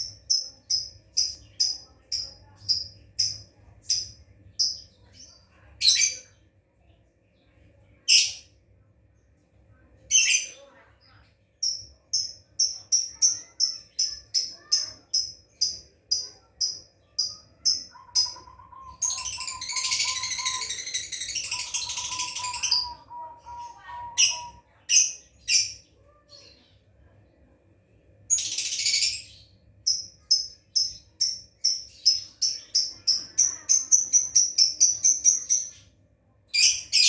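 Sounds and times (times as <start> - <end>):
lovebird chattering: 0.0 - 4.9, 11.6 - 25.9, 28.3 - 35.8
lovebird chirping: 0.0 - 6.3, 11.6 - 25.9, 28.3 - 35.9.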